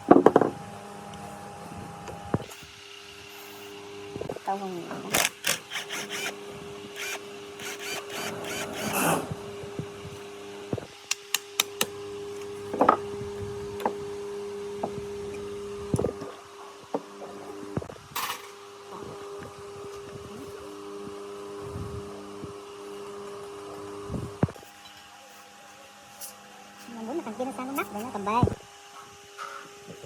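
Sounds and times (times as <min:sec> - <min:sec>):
steady machine hum: 0:03.0 - 0:14.7
clicks and knocks of tools: 0:05.1 - 0:06.3, 0:11.0 - 0:12.5.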